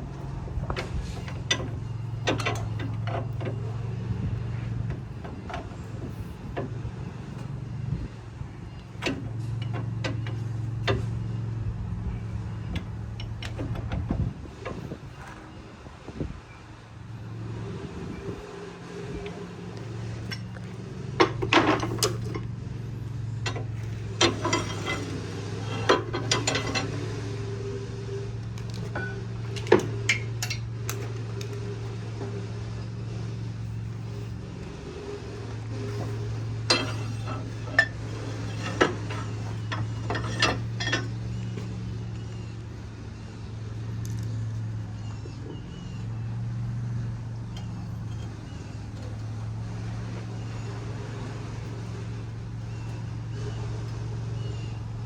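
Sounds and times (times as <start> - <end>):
metal tools clinking: 23.4 - 27.0, 28.6 - 31.1, 35.8 - 41.3, 47.5 - 48.6.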